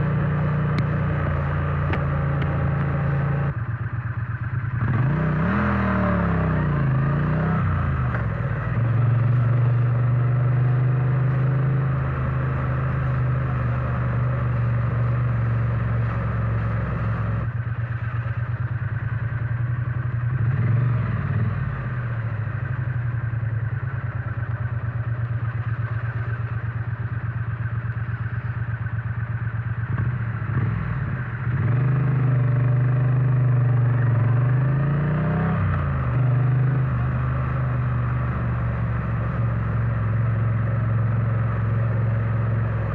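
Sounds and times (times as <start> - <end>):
motorcycle engine and exhaust: 0.0 - 42.9.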